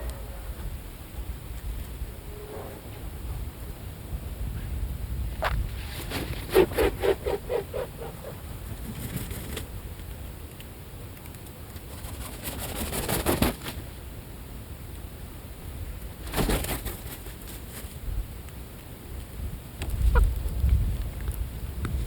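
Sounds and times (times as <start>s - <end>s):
steady low rumble: 0.0s - 6.0s
bird wings flapping and scuffling: 5.7s - 9.7s, 11.3s - 13.9s, 16.2s - 18.0s.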